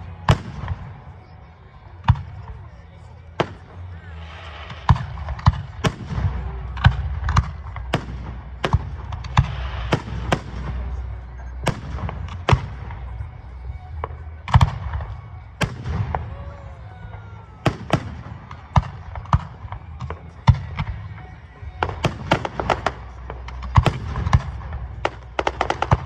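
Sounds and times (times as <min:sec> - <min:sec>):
firework crackling: 0:03.4 - 0:13.2, 0:21.8 - 0:26.0.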